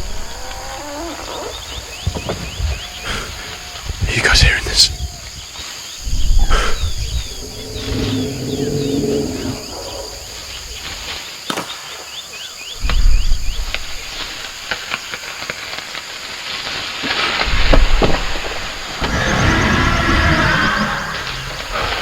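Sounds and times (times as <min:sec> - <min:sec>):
insects chirping: 0:00.0 - 0:22.0
loud deep rumbles: 0:06.0 - 0:09.7.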